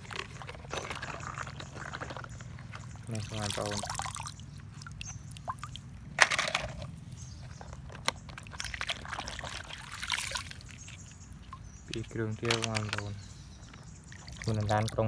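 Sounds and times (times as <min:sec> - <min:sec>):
water splashing and pouring: 0:00.0 - 0:07.0, 0:07.9 - 0:13.2, 0:14.0 - 0:15.0
sharp clicks and knocks: 0:11.9 - 0:13.8.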